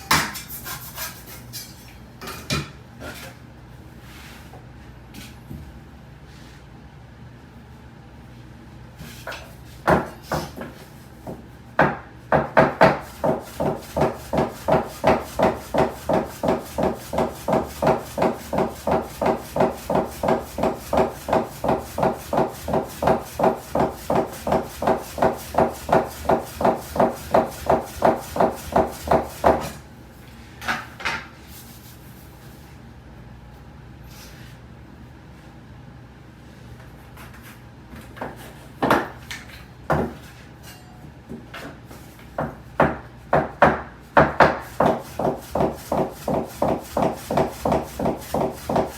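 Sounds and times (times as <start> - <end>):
knife chopping dough on wooden board: 9.2 - 29.8, 38.2 - 40.3, 41.6 - 48.9.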